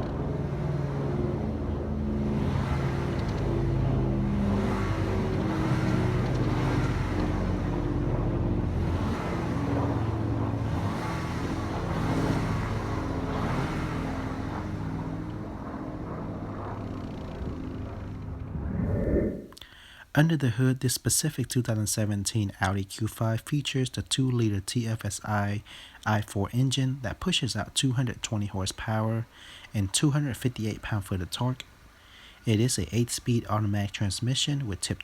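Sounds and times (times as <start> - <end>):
car engine revving: 0.0 - 19.6.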